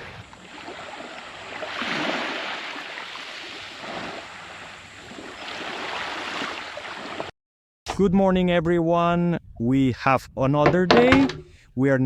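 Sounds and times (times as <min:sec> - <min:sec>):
water lapping in swells: 0:00.0 - 0:07.3.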